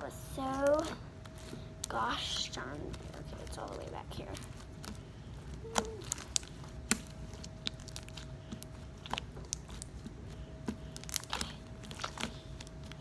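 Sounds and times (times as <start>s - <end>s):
faint steady hum: 0.0s - 13.0s
slime squishing with clicks and pops: 4.4s - 13.0s.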